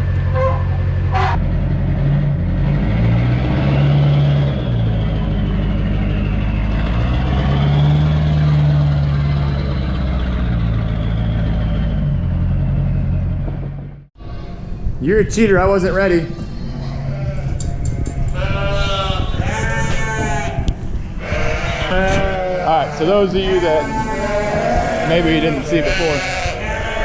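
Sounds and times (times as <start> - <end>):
vehicle engine revving: 1.0 - 14.1.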